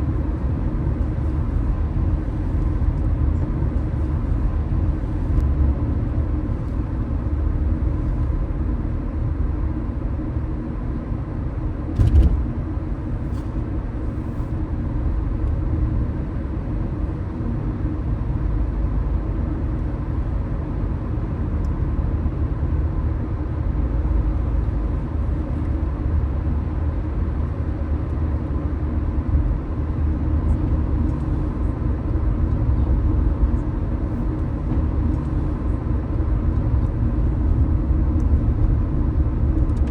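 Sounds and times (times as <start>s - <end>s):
car engine and road noise: 0.0s - 39.9s
brief thump: 12.0s - 12.5s.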